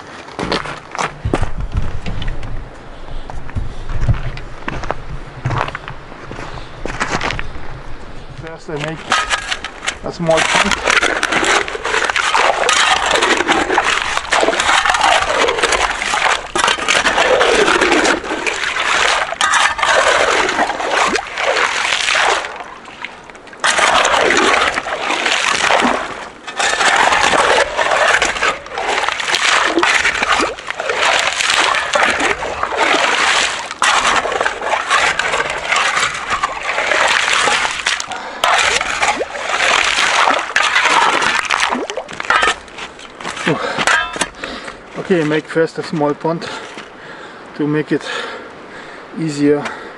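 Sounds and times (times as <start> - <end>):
water splashing: 8.5 - 45.4
shovel scraping gravel: 8.7 - 22.6, 23.6 - 45.4.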